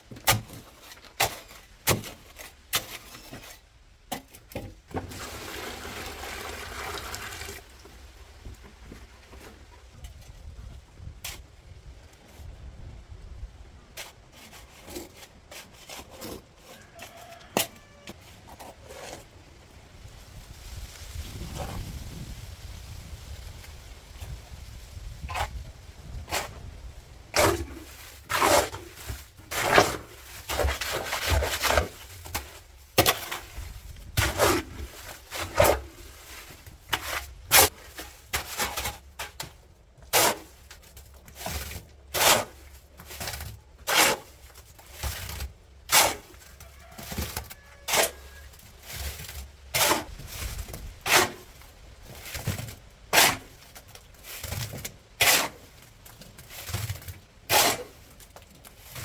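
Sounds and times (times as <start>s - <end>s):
hand tool scraping mortar: 0.1s - 5.1s, 13.9s - 19.3s, 27.3s - 59.0s.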